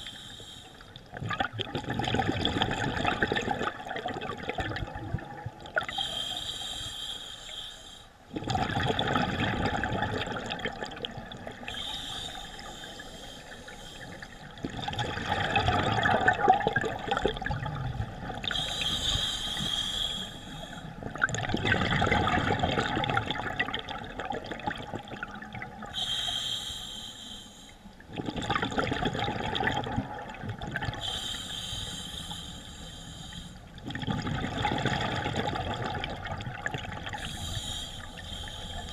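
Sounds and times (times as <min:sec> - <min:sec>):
inhale through regulator: 0:00.0 - 0:01.0, 0:05.9 - 0:08.2, 0:11.6 - 0:14.5, 0:18.4 - 0:21.0, 0:25.9 - 0:27.9, 0:31.0 - 0:33.7, 0:37.1 - 0:38.9
exhaled bubbles rushing: 0:01.1 - 0:05.9, 0:08.3 - 0:11.7, 0:14.4 - 0:18.6, 0:21.0 - 0:25.9, 0:28.1 - 0:31.0, 0:33.8 - 0:37.2.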